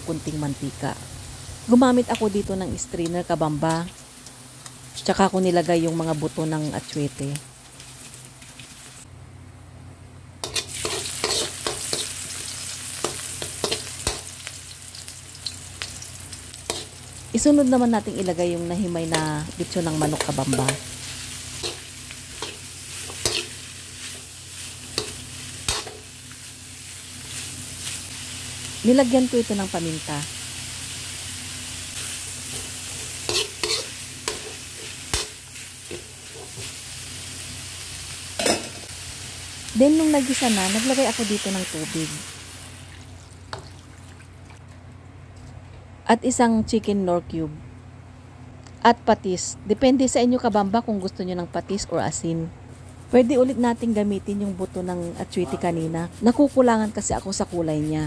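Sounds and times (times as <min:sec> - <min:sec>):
garlic and onion sizzling in oil: 0:00.0 - 0:44.5, 0:50.1 - 0:58.0
metal spoon scraping wok: 0:10.4 - 0:14.3, 0:19.8 - 0:26.1, 0:32.0 - 0:36.7.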